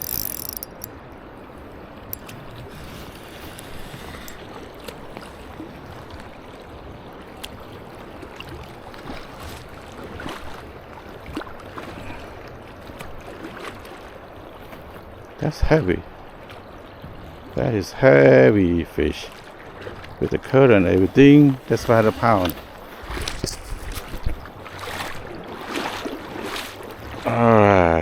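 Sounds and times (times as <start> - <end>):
faint clicks: 0.0 - 0.9
river current rushing: 0.0 - 10.7, 20.2 - 27.6.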